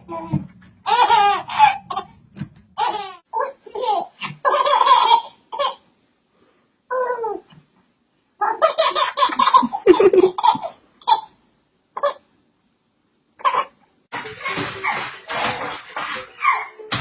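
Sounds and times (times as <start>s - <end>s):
child laughing: 8.6s - 10.6s.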